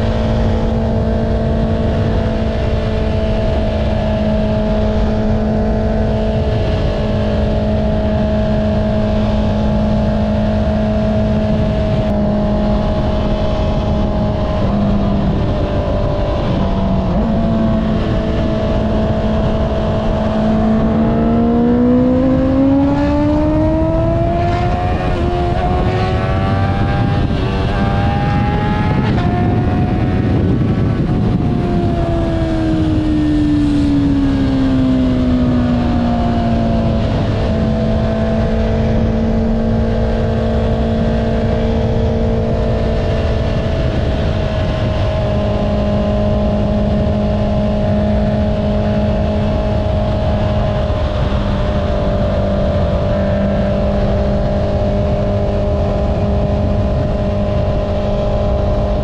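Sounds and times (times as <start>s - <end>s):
motorcycle engine accelerating: 0.0s - 59.0s
wind noise: 0.0s - 59.0s.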